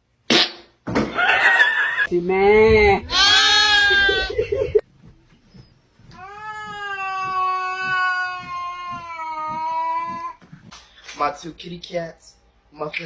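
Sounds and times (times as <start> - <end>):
cat meowing: 3.0 - 4.4.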